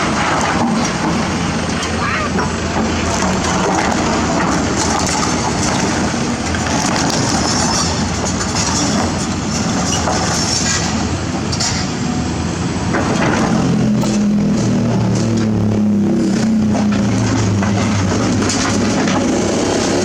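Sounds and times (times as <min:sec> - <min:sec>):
excavator diesel engine running: 0:00.0 - 0:20.0
sharp metal knocks and clanks: 0:12.9 - 0:15.5.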